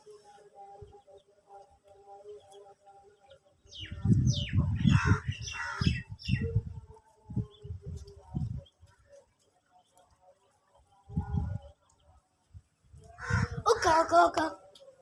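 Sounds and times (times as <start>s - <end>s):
birds chirping: 0.0s - 6.8s, 7.4s - 14.4s
harsh bird calls: 3.7s - 6.5s, 13.2s - 14.0s.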